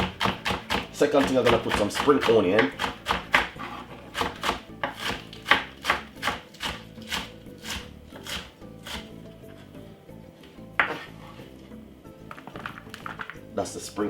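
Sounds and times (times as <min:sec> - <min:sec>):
knife chopping on cutting board: 0:00.0 - 0:09.2.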